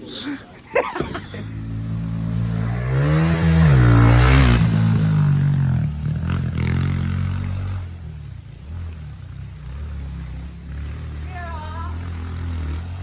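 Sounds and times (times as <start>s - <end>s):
dirt bike engine revving: 1.0s - 13.0s.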